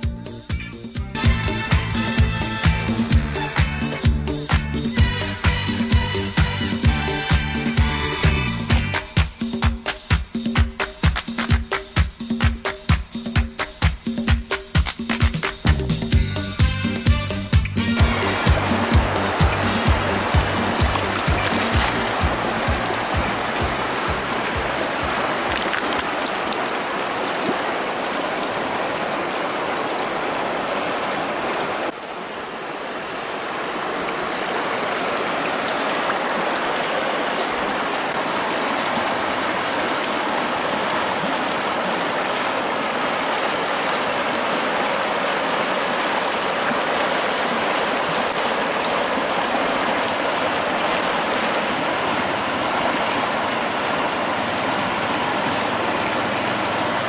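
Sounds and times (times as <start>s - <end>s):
river flowing over rocks: 18.0s - 57.0s.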